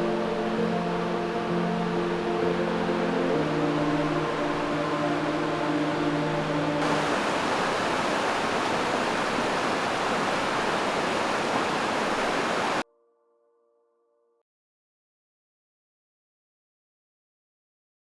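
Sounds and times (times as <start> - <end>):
background music: 0.0 - 12.9
river water rushing over rocks: 2.8 - 12.8.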